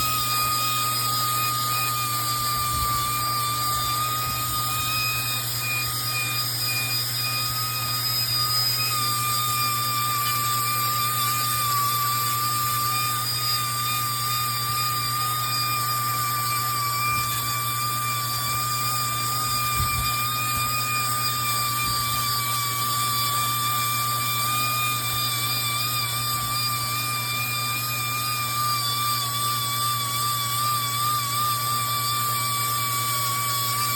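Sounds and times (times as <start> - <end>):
machine high-pitched whine: 0.0 - 33.9.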